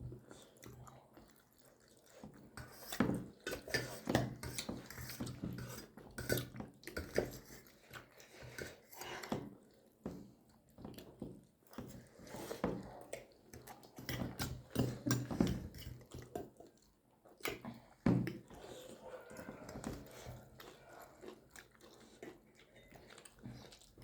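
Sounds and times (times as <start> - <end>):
people chewing and lip smacking: 0.0 - 24.0.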